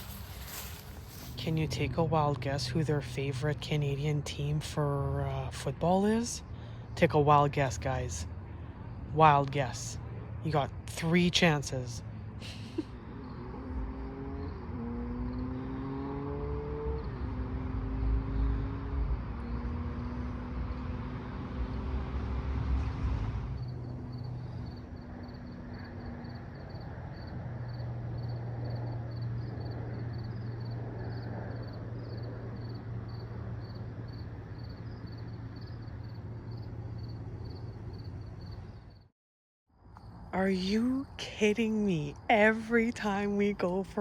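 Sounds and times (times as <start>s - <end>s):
vehicle engine passing: 12.0s - 34.5s.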